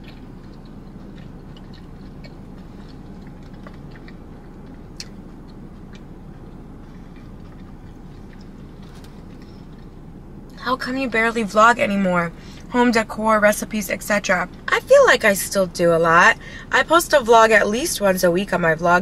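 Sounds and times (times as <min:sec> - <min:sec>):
wet mouth clicks: 0:00.0 - 0:09.9
steady low hum: 0:00.0 - 0:19.0.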